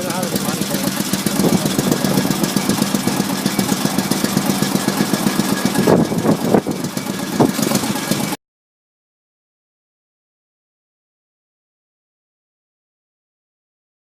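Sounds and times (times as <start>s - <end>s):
engine knocks: 0.0s - 8.4s
old car engine running: 0.0s - 8.4s.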